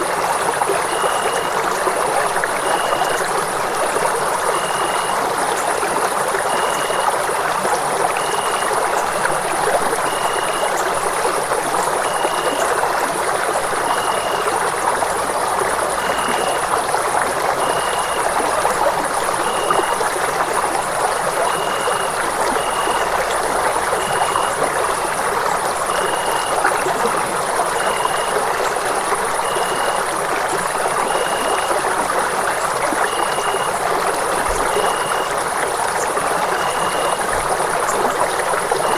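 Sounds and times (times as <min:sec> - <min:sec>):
running water rushing: 0:00.0 - 0:38.9
faint high chirping tone: 0:00.8 - 0:03.4, 0:04.5 - 0:05.2, 0:06.5 - 0:07.2, 0:08.2 - 0:09.4, 0:10.0 - 0:11.0, 0:12.0 - 0:12.8, 0:13.8 - 0:14.6, 0:16.0 - 0:16.7, 0:19.4 - 0:20.0, 0:23.9 - 0:24.8, 0:27.7 - 0:30.1, 0:31.0 - 0:31.8, 0:33.0 - 0:33.8, 0:34.6 - 0:35.4, 0:36.4 - 0:37.3.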